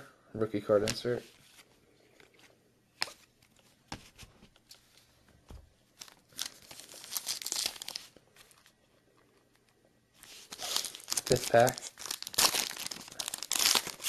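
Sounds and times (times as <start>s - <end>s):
card pack wrapper crinkling and tearing: 6.0s - 8.8s, 10.2s - 14.0s.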